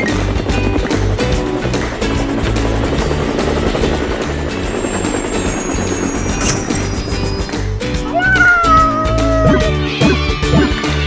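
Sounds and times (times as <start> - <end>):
toy helicopter rotor chopping: 0.0 - 7.5
upbeat background music: 0.0 - 11.0.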